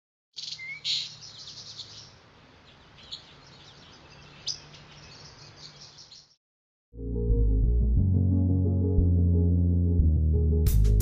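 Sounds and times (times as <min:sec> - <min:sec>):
small birds chirping: 0:00.4 - 0:06.4.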